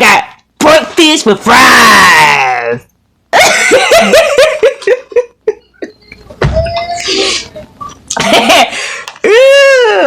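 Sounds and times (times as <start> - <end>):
person laughing: 3.3 - 9.6.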